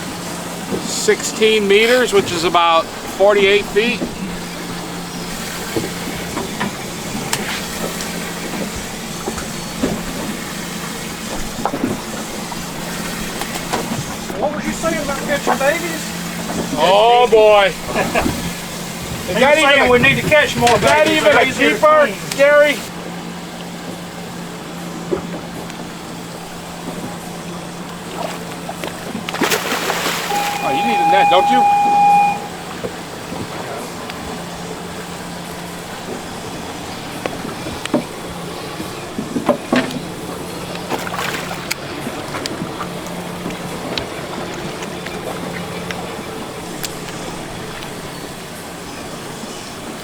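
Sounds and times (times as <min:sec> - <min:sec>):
wind and water hiss: 0:00.0 - 0:30.4
boat engine idling: 0:00.0 - 0:50.0.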